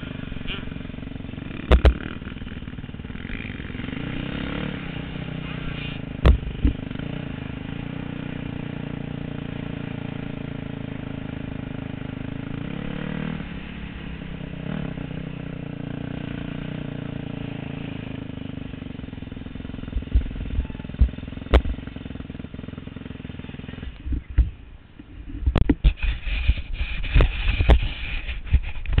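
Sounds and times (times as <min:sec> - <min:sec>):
motorcycle engines running: 0:00.0 - 0:29.0
dull thumps on microphone: 0:01.7 - 0:02.0, 0:06.2 - 0:06.8, 0:19.9 - 0:21.8.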